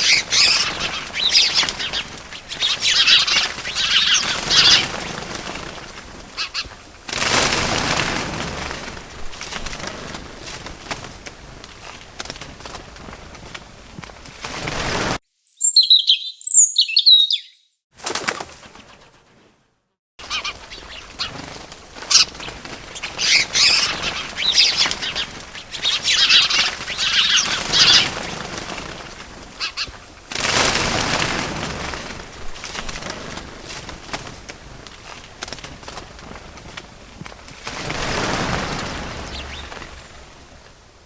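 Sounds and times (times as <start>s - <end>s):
small birds chirping: 0.0s - 6.9s, 15.3s - 17.8s, 20.2s - 30.1s, 36.1s - 40.6s
wings flapping: 0.0s - 15.2s, 18.0s - 19.6s, 20.2s - 41.0s.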